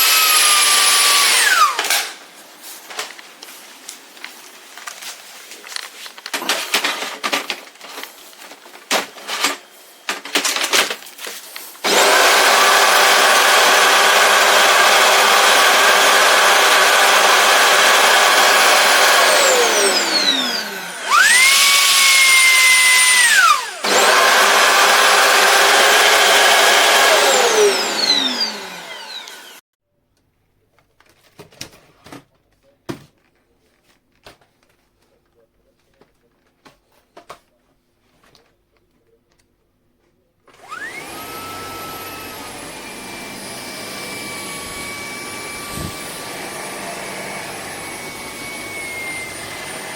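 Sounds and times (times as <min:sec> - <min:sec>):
vacuum cleaner running: 0:00.0 - 0:02.2, 0:08.0 - 0:29.6, 0:40.5 - 0:49.9.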